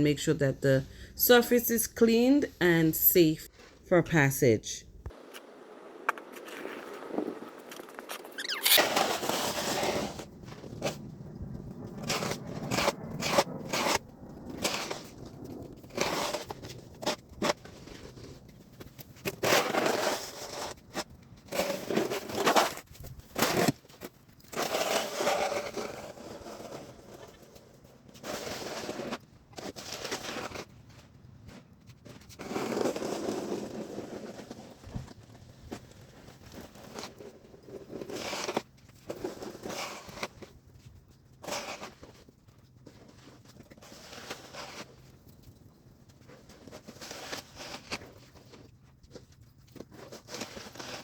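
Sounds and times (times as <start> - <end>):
snow shovel scraping icy snow: 8.4 - 11.0, 12.0 - 14.0, 14.6 - 15.2, 15.8 - 18.4, 19.2 - 22.8, 23.4 - 23.8, 24.5 - 27.3, 28.2 - 30.7, 32.4 - 34.8, 36.1 - 40.4, 41.4 - 42.2, 42.9 - 45.0, 46.5 - 48.6, 50.0 - 51.0.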